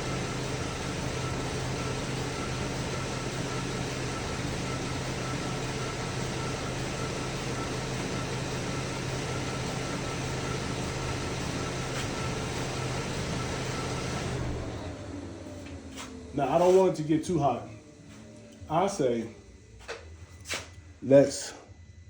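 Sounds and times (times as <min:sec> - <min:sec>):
car engine idling: 0:00.0 - 0:20.2
faint high whine: 0:15.5 - 0:22.0.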